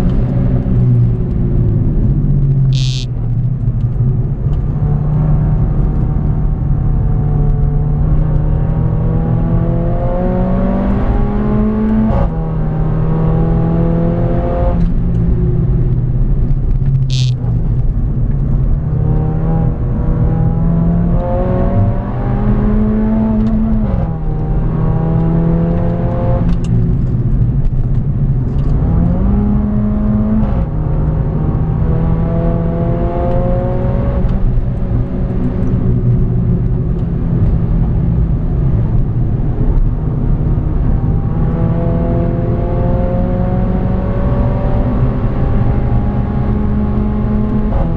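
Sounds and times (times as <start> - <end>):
car engine accelerating: 0.0 - 47.9
short high-pitched squeal: 2.7 - 3.1, 17.1 - 17.4.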